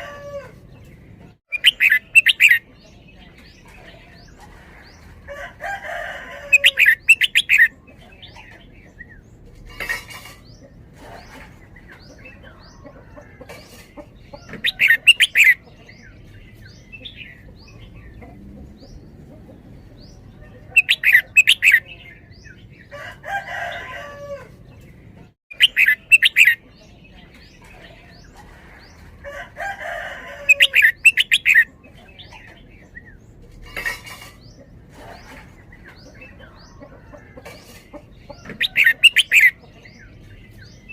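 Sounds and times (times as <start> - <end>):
rooster crowing: 0.0 - 0.6, 5.3 - 7.1, 22.9 - 24.6, 29.3 - 31.1
bird singing rapid phrases: 0.7 - 5.2, 6.4 - 23.0, 24.6 - 40.9.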